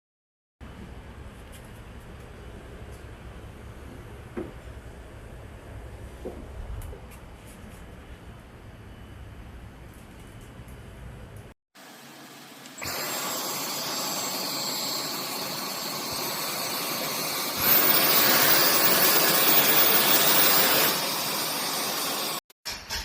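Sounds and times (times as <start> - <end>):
stick vacuum running: 11.8 - 22.4.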